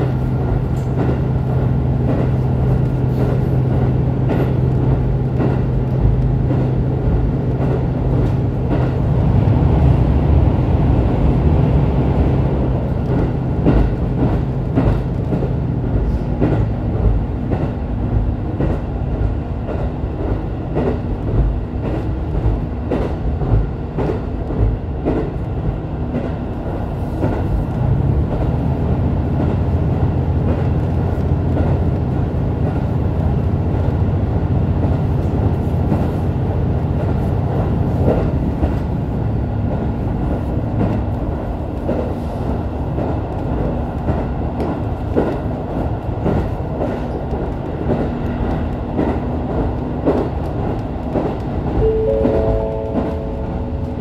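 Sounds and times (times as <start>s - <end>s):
rail joint clicks: 0.0s - 54.0s
train wheel rumble: 0.0s - 54.0s
diesel engine drone: 51.8s - 54.0s.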